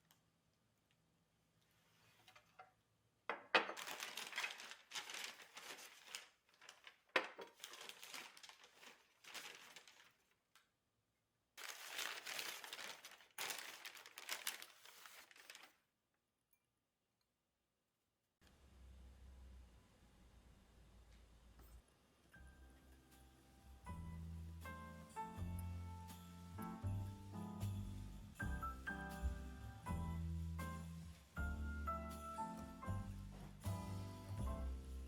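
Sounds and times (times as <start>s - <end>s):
crinkling and rustling by hand: 0.0s - 10.9s, 11.6s - 16.0s, 23.3s - 35.0s.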